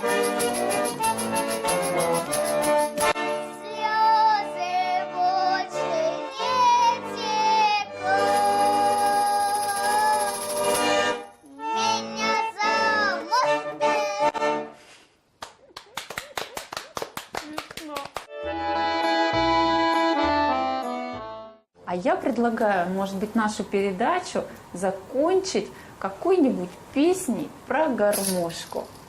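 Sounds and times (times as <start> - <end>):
accordion: 0.0 - 14.9, 18.3 - 21.7
person singing with vibrato: 3.6 - 10.8.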